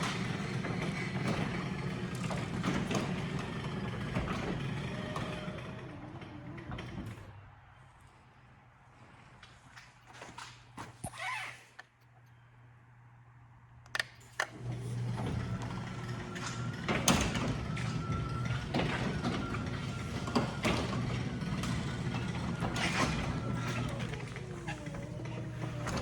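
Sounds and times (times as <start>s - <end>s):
door rattling and clanking: 0.0s - 7.3s, 14.6s - 26.0s
garage door opener clicking on: 0.0s - 7.4s, 13.9s - 26.0s
garage door opener humming: 0.0s - 7.5s, 13.8s - 26.0s.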